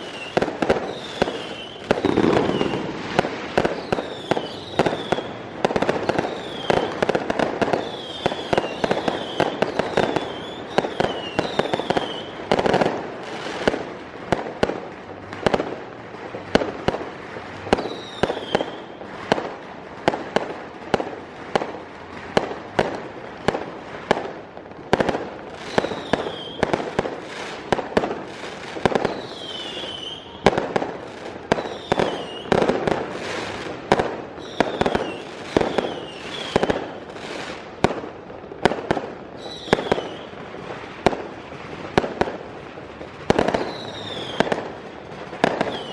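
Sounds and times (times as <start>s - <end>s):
falling firework whistles: 0.0s - 12.7s, 17.6s - 19.4s, 25.5s - 27.6s, 28.4s - 30.6s, 31.5s - 33.7s, 34.4s - 37.6s, 39.3s - 40.5s, 43.3s - 44.7s, 45.3s - 45.9s
firecrackers banging: 0.0s - 45.9s.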